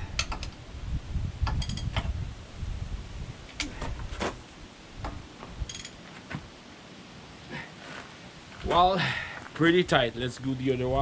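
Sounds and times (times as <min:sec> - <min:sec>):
wrench clicking and creaking: 0:05.7 - 0:06.0.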